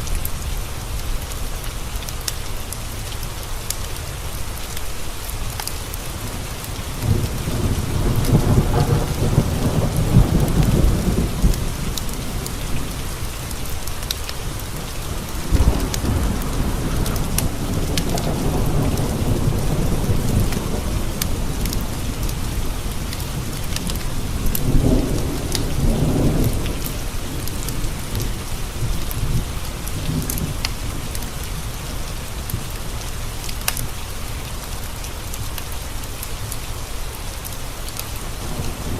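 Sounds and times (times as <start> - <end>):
rain pattering on windows: 0.0 - 38.9
rolling thunder: 6.2 - 13.8, 14.5 - 32.7.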